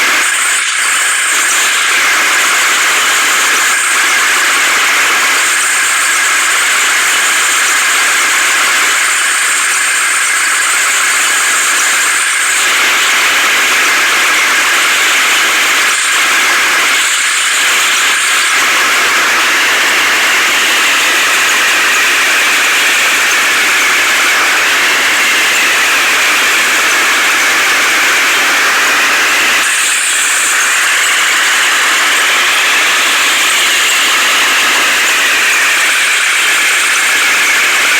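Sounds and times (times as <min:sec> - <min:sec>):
heavy machinery running: 0:00.0 - 0:37.9.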